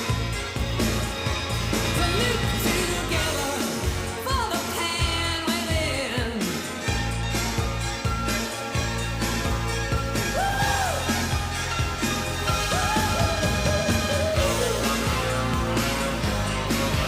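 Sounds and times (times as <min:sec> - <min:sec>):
dance-pop song with sung vocal: 0:01.8 - 0:07.0, 0:10.3 - 0:11.4, 0:12.5 - 0:16.2.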